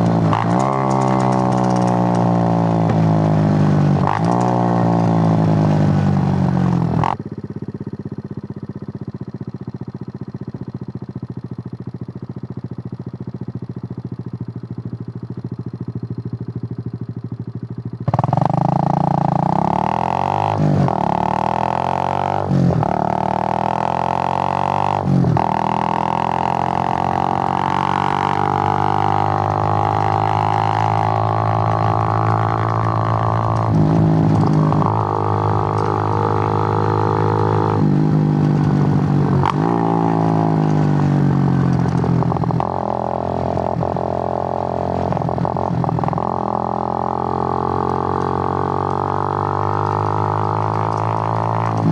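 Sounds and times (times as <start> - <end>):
motorcycle engine idling and accelerating: 0.0 - 51.9.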